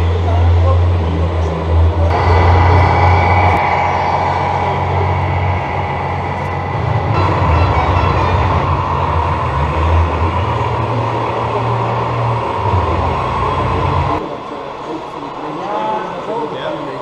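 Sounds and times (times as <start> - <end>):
simulated diesel engine drone: 0.0 - 17.0.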